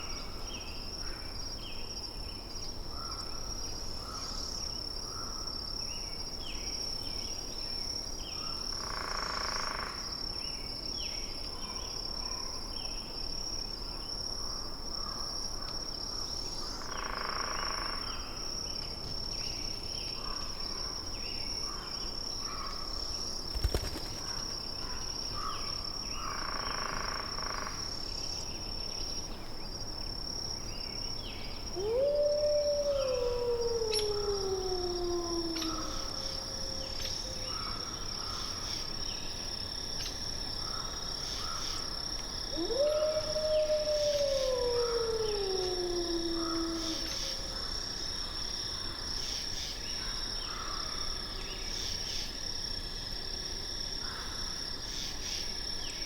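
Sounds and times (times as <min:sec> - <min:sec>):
wolf howling: 0:31.8 - 0:37.4, 0:42.5 - 0:47.6.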